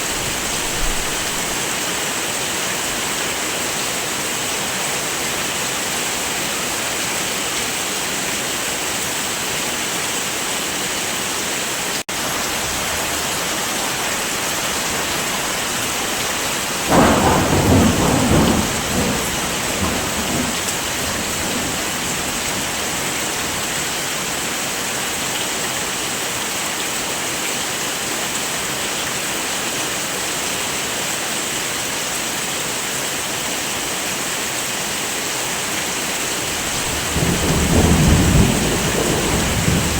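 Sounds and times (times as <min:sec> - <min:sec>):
thunder clap rumbling: 0:00.0 - 0:01.6, 0:12.7 - 0:24.0, 0:36.4 - 0:39.9
heavy rain: 0:00.0 - 0:39.9.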